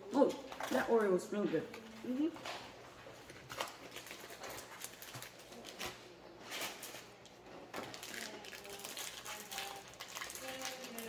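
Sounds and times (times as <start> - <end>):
plastic packaging crinkling: 3.1 - 11.0.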